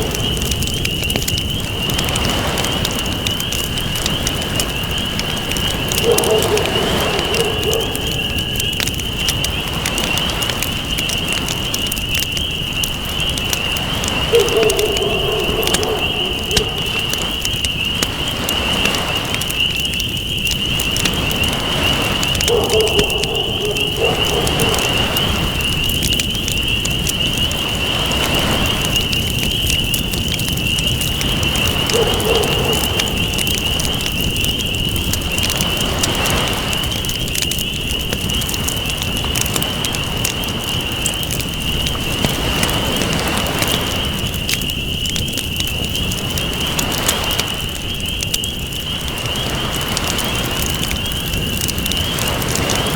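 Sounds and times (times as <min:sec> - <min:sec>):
crackling campfire: 0:00.0 - 0:52.9
waves washing in and out: 0:13.8 - 0:19.6.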